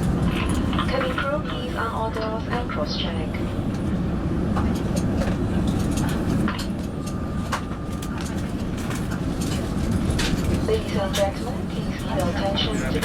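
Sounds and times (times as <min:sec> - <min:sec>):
low aircraft cabin rumble: 0:00.0 - 0:13.0.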